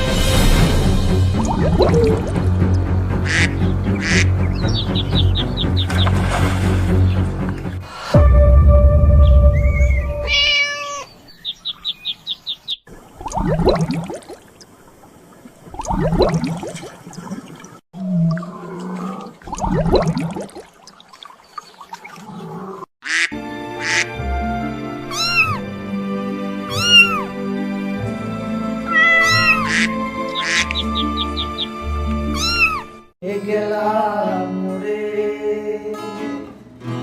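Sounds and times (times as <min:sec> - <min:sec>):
background music: 0:00.0 - 0:10.4, 0:23.1 - 0:37.0
cat crying: 0:10.2 - 0:11.2, 0:25.0 - 0:25.7, 0:26.7 - 0:27.3, 0:28.8 - 0:30.7, 0:32.2 - 0:33.0.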